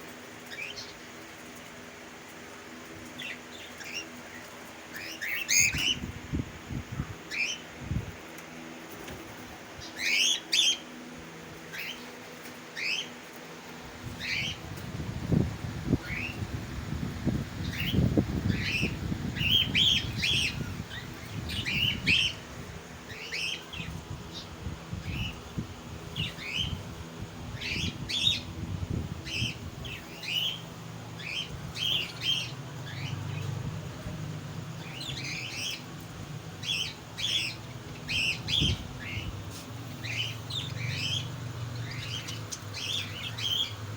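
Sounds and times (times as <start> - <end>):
budgerigars chirping: 36.6 - 39.3, 40.0 - 43.8.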